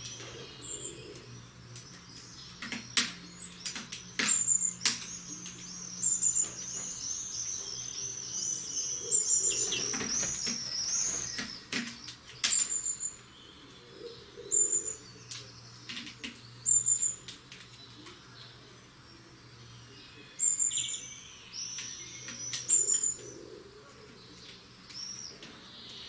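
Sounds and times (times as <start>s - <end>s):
bird singing rippling twitter: 0.0s - 23.6s, 24.2s - 26.0s.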